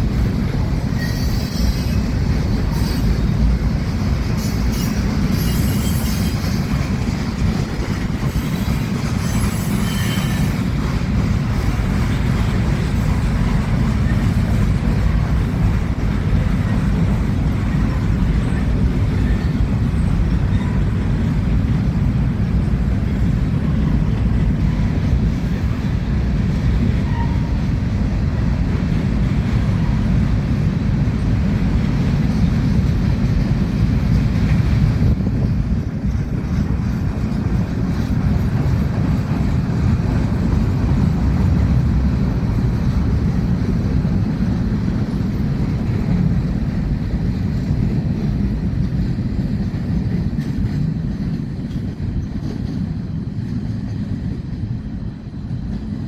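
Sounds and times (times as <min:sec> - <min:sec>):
high-pitched wheel squeal: 0:00.9 - 0:02.1, 0:02.7 - 0:03.2, 0:04.4 - 0:06.6, 0:08.4 - 0:10.6.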